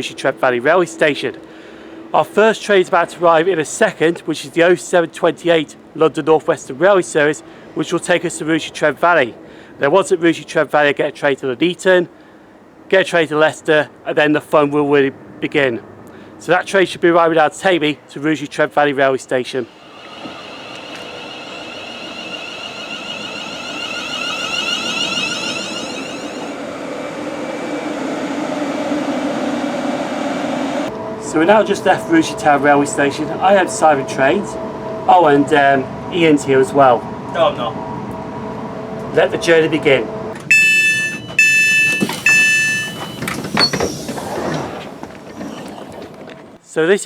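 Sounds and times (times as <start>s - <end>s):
electric train whine: 0.0s - 10.5s, 18.9s - 46.6s
train door warning beeps: 19.7s - 26.7s, 40.1s - 44.8s.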